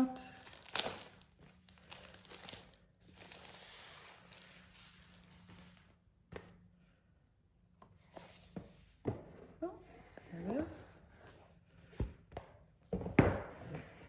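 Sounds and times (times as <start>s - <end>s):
packaging rustling and sliding: 0.4s - 6.0s.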